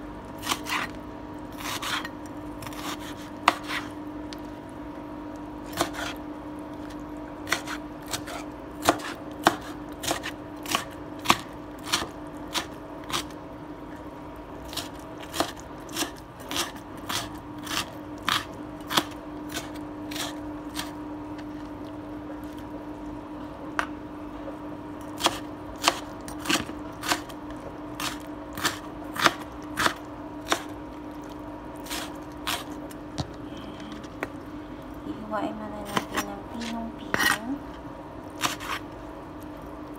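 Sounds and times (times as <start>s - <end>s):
steady low hum: 0.0s - 39.9s
knife chopping on plastic board: 1.6s - 3.9s, 5.7s - 6.2s, 7.4s - 13.3s, 14.7s - 20.9s, 25.2s - 27.3s, 28.0s - 30.7s, 38.4s - 38.8s.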